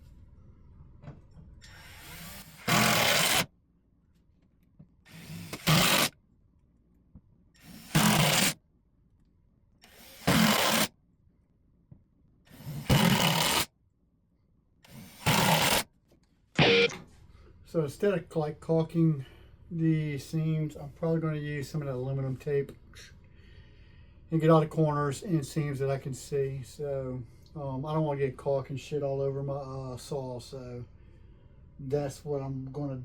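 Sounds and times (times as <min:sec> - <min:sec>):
power drill whirring: 0:01.6 - 0:03.5, 0:05.1 - 0:06.1, 0:07.6 - 0:08.6, 0:09.8 - 0:10.9, 0:12.5 - 0:13.6, 0:14.9 - 0:15.8.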